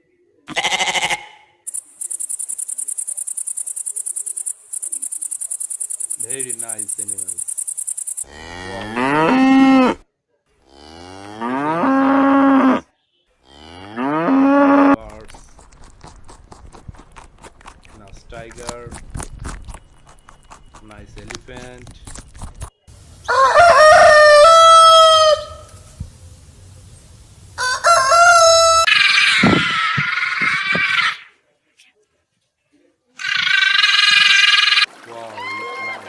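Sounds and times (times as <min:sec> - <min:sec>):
high fast-pulsing chirping: 0:01.7 - 0:08.3
cow mooing: 0:08.2 - 0:10.0, 0:10.6 - 0:15.0.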